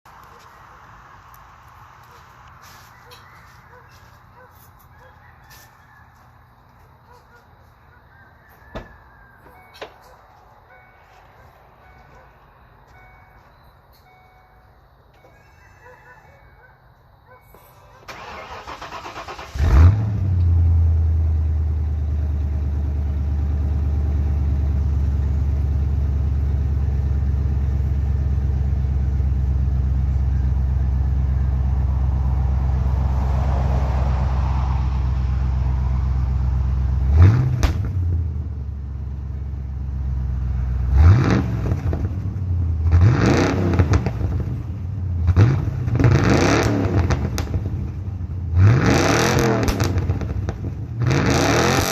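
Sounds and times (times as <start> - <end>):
vee-eight car engine idling and revving: 18.1 - 51.9.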